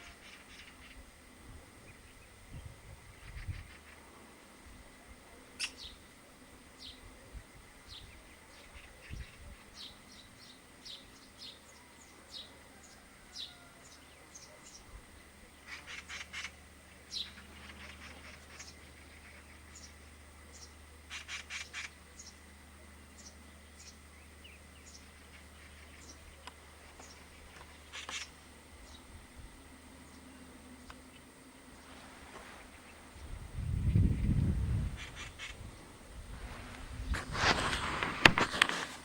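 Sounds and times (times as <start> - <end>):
rapid rattling bird chatter: 0.0 - 1.1, 15.5 - 22.5, 23.2 - 31.2, 33.7 - 35.8.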